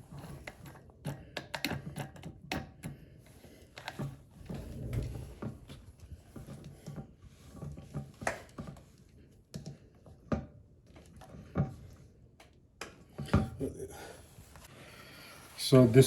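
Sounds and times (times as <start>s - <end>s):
plastic parts knocking and clicking: 0.4s - 3.0s.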